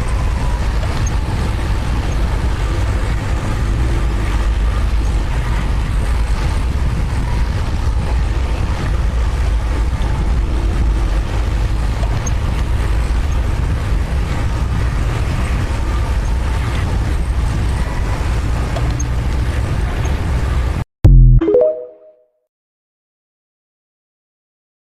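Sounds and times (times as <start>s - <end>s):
diesel engine rumble: 0.0s - 21.2s
loud pitched note: 21.1s - 22.1s.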